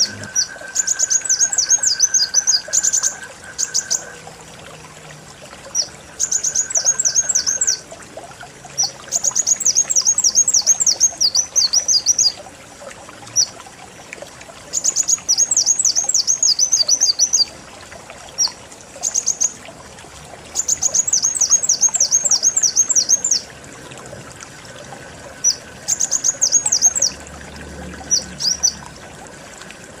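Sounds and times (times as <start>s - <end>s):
bird chittering: 0.0s - 4.2s.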